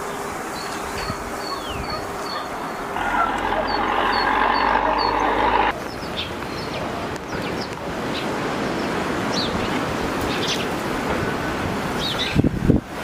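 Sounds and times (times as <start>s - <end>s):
songbirds chirping: 0.1s - 10.8s
steady hum: 3.0s - 5.7s.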